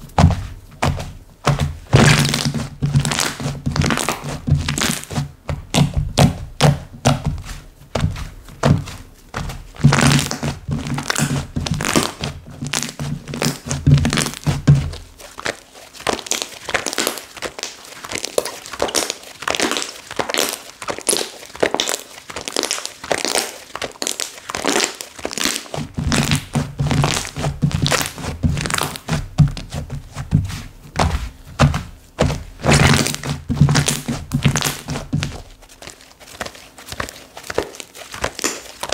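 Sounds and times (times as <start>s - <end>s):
dull thunks of squished slime: 0.0s - 17.6s, 24.5s - 38.9s
slime clicking and popping: 15.4s - 29.6s, 31.0s - 35.4s, 36.4s - 38.9s.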